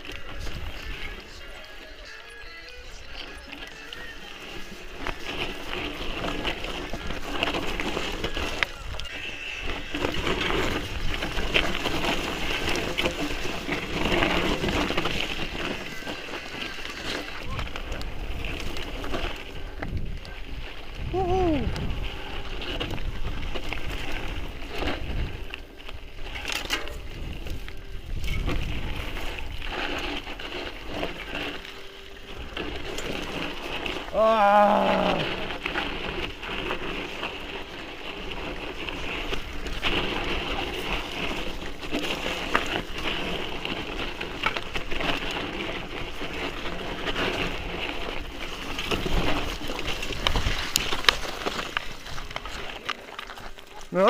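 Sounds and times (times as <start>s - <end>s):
bike tyre and wind noise: 0.0s - 54.0s
rider wavering cry: 21.0s - 22.1s, 33.3s - 35.9s.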